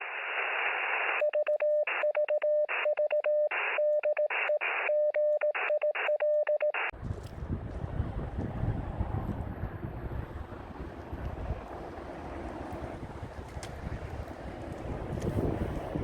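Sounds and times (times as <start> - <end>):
radio band hiss: 0.0 - 1.2
morse code tone: 1.2 - 6.9
wind rumble on microphone: 7.0 - 16.0.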